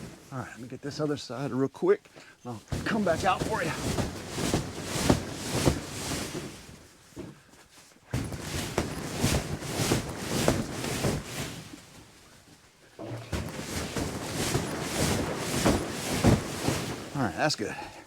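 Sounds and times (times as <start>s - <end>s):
footsteps crunching through snow: 2.5s - 7.1s, 13.2s - 17.5s.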